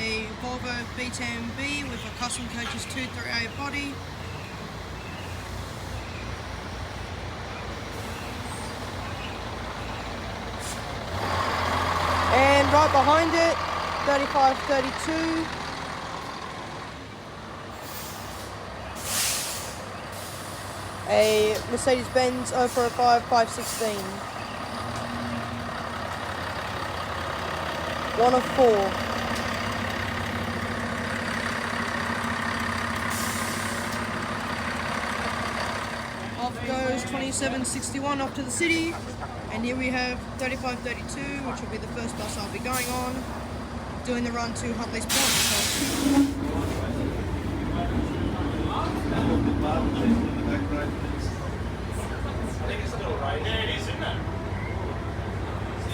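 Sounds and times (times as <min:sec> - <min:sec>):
bus diesel engine running: 0:00.0 - 0:55.9
hissing air burst: 0:17.8 - 0:20.9, 0:45.1 - 0:46.9.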